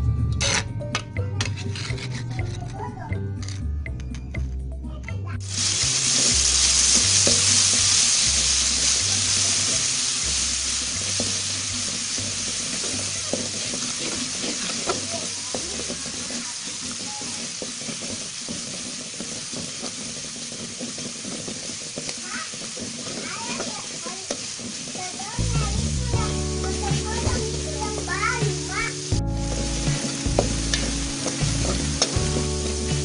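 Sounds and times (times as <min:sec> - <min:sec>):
metal spatula scraping pan: 0:00.4 - 0:00.7, 0:01.4 - 0:02.8, 0:11.0 - 0:28.2, 0:29.4 - 0:33.0
spice paste sizzling in oil: 0:05.5 - 0:33.0.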